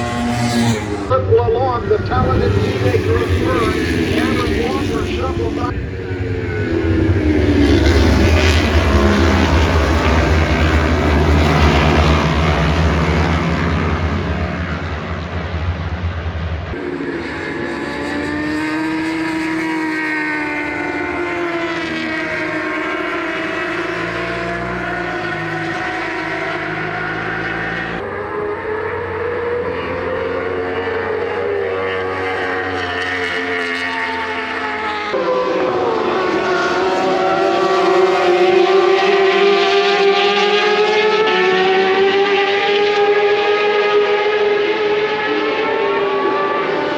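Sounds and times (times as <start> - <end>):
racing motorcycle engines revving: 0.0 - 46.9.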